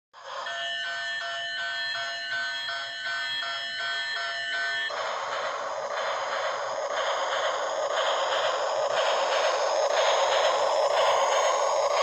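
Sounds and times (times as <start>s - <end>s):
level crossing warning bell: 0.4s - 4.9s
train rushing past: 4.8s - 12.0s.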